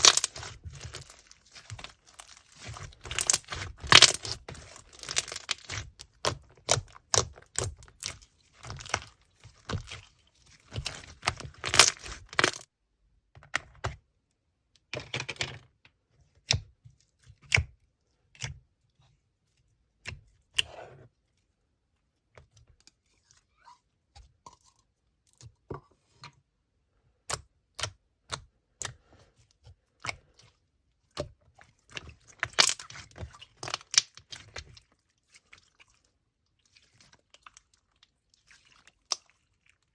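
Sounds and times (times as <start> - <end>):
slime crackling: 0.0 - 12.6.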